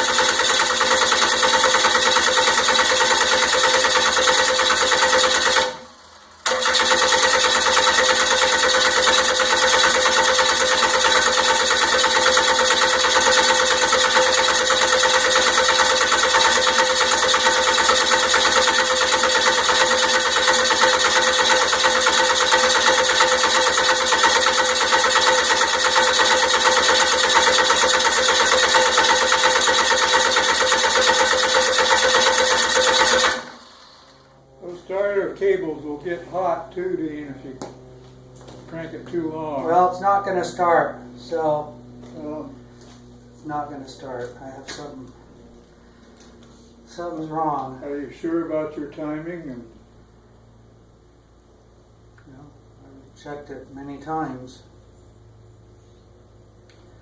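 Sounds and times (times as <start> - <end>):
diesel engine cranking: 0.0 - 34.2.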